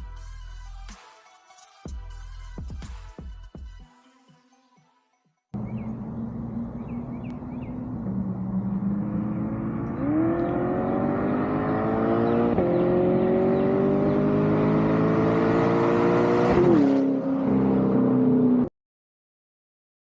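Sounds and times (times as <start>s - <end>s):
sports car engine revving: 5.6s - 18.6s.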